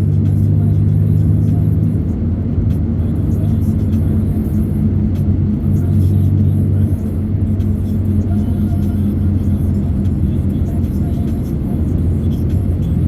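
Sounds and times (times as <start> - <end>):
road noise: 0.0 - 13.0
vehicle engine drone: 0.0 - 13.0.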